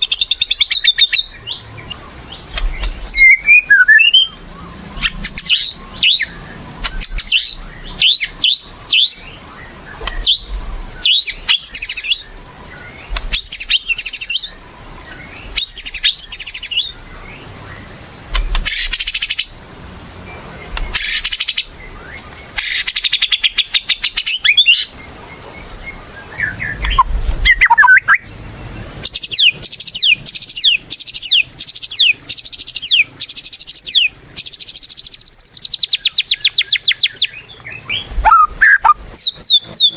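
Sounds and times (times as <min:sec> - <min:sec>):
bird singing whistled phrases: 0:00.0 - 0:01.6, 0:02.6 - 0:04.4, 0:05.0 - 0:09.3, 0:09.9 - 0:12.4, 0:15.6 - 0:17.0, 0:26.3 - 0:28.3, 0:29.0 - 0:39.9.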